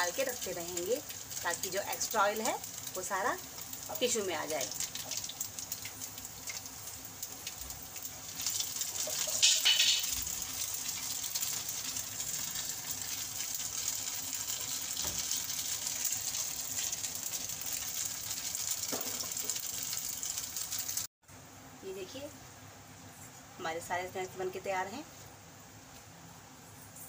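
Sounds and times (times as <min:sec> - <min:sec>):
noodles sizzling in oil: 0:00.0 - 0:21.1
pan clatter: 0:08.4 - 0:10.4, 0:18.6 - 0:20.7.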